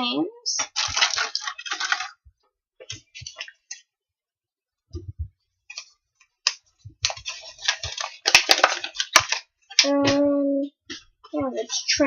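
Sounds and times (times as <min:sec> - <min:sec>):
crackling and rustling: 0:00.5 - 0:03.9, 0:05.0 - 0:10.2.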